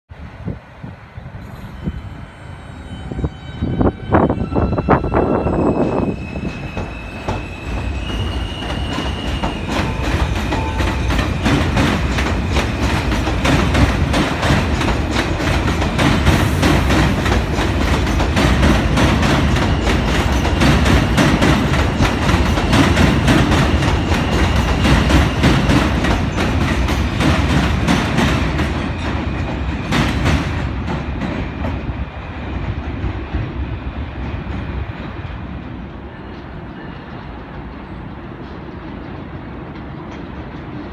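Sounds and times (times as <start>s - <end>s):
train wheels clattering on rails: 5.3s - 40.9s.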